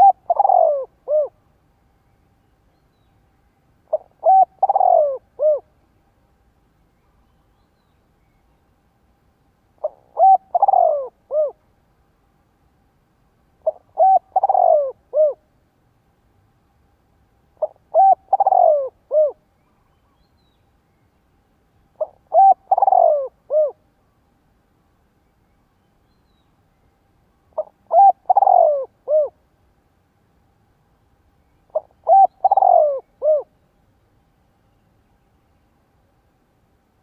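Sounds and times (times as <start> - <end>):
dove cooing: 0.0 - 1.4, 3.9 - 5.7, 9.8 - 11.6, 13.6 - 15.4, 17.6 - 19.4, 22.0 - 23.8, 27.6 - 29.4, 31.7 - 33.5.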